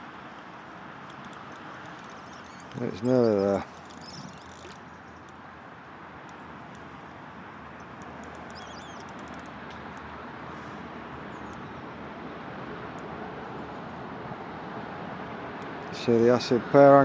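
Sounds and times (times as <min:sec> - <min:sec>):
bird chirp: 0:01.5 - 0:05.3, 0:07.8 - 0:09.4.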